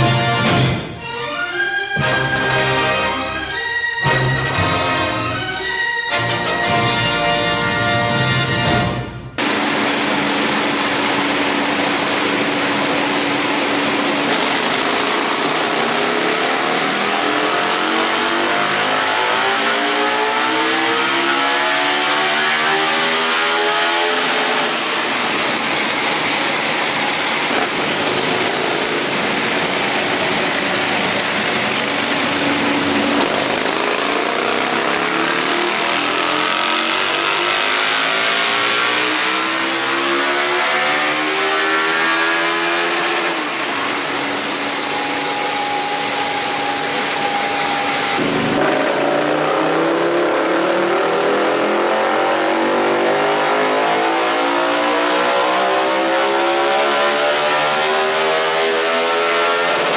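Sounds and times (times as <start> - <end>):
motorcycle engine revving: 9.4 - 59.9.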